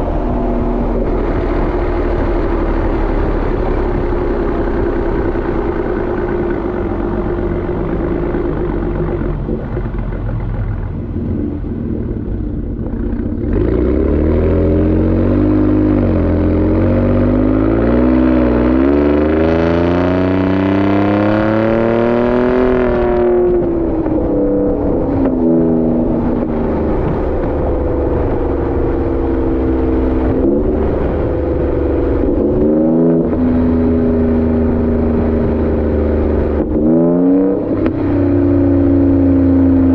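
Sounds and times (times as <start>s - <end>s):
truck engine accelerating: 0.0s - 39.9s.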